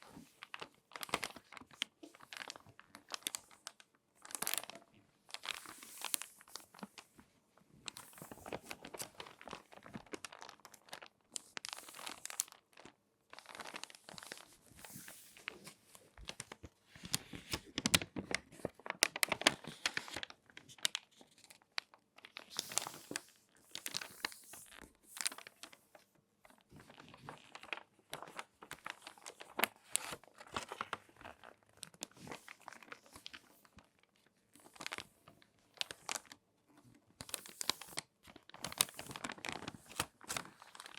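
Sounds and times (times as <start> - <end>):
magazine pages crackling: 0.2 - 7.1, 7.9 - 36.4, 37.2 - 40.9.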